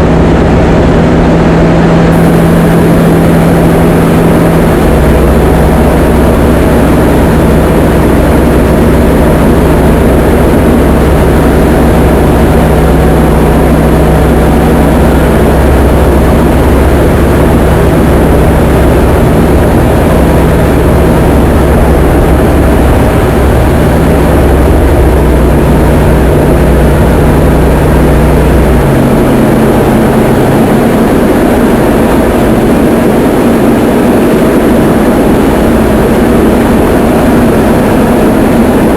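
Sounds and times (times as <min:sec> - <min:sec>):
light aircraft engine droning: 0:00.0 - 0:38.9.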